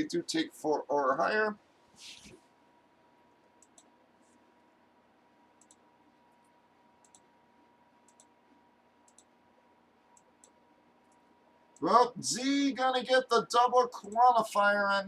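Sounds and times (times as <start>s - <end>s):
faint sharp clicks: 3.6s - 3.9s, 5.6s - 7.3s, 8.0s - 8.4s, 9.0s - 9.4s.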